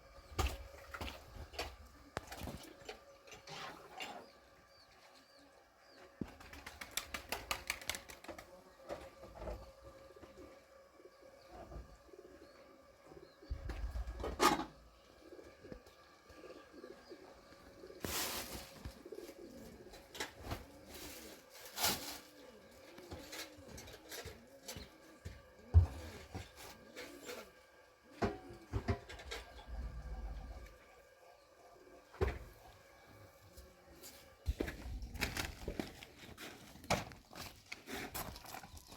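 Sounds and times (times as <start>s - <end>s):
dove cooing: 9.6s - 32.6s.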